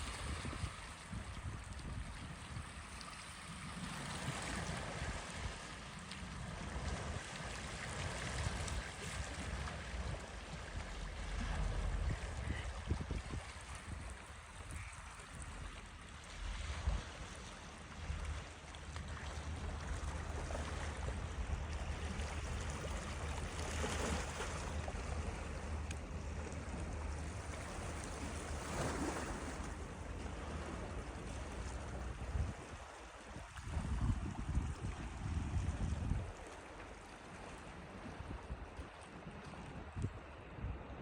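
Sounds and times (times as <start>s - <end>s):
moving water: 0.0s - 41.0s
wind: 0.0s - 41.0s
low rumble: 9.4s - 23.7s.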